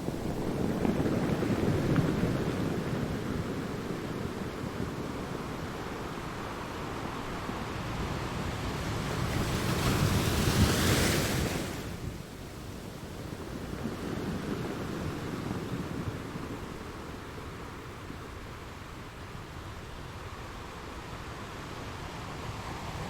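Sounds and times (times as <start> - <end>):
wind buffeting microphone: 0.0 - 18.5.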